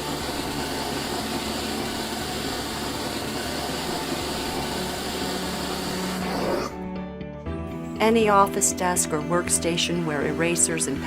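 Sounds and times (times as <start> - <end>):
vacuum suction rushing air: 2.0 - 6.8.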